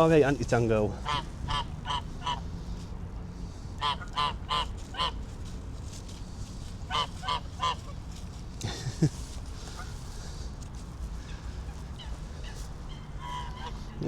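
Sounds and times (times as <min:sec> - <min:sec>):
geese honking: 0:00.8 - 0:05.3, 0:06.3 - 0:08.0, 0:11.1 - 0:14.0.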